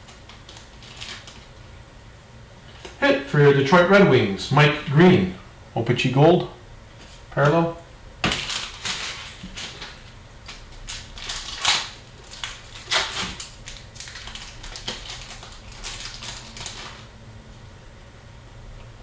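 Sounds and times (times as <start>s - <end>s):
card pack wrappers crinkling: 0.0s - 1.6s, 8.2s - 17.1s.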